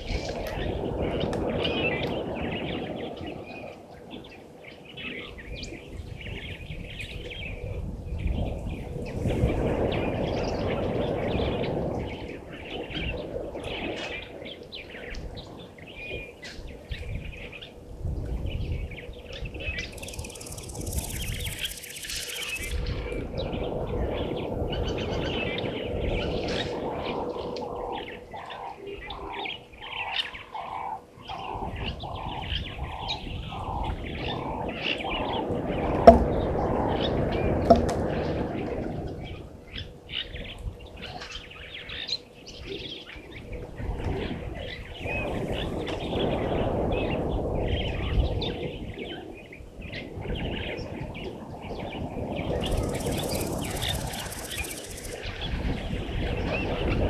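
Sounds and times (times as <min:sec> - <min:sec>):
low outdoor background: 0:19.1 - 0:24.4
high bird chirps: 0:19.9 - 0:22.8, 0:52.6 - 0:55.2.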